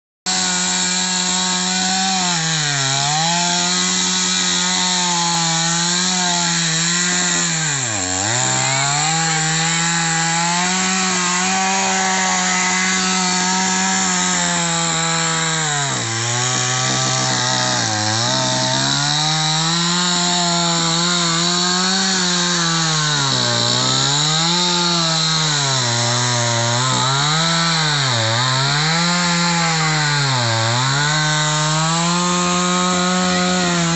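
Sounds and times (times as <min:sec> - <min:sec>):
chainsaw cutting wood: 0:00.3 - 0:33.9.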